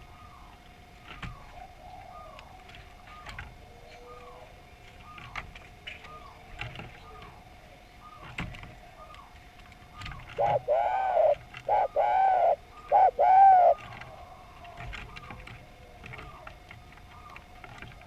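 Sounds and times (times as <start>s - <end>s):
dove cooing: 1.2s - 5.4s, 10.0s - 17.5s
fainter higher coos: 10.4s - 13.8s.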